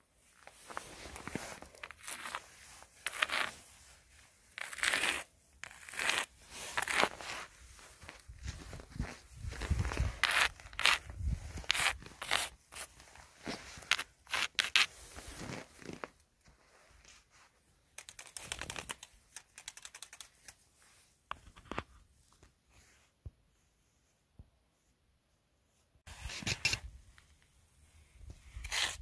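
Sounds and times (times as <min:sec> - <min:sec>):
footsteps crunching in snow: 0:06.4 - 0:16.6.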